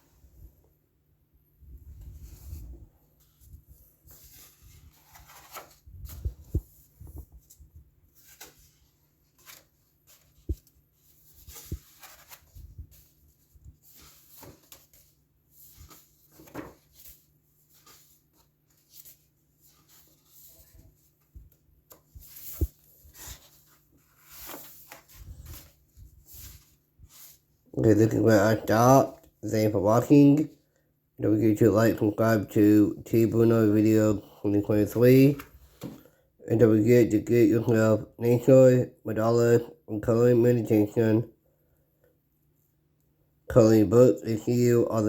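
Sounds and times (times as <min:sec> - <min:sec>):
paper pages rustling: 0:02.0 - 0:27.5.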